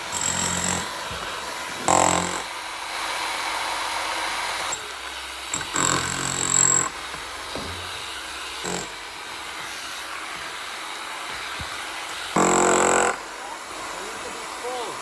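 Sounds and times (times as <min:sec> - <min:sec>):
breaker hammer bursts: 0:05.4 - 0:14.0.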